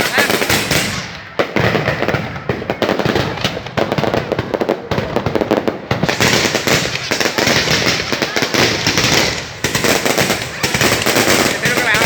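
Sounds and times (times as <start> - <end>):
fireworks banging and crackling: 0.0 - 12.0.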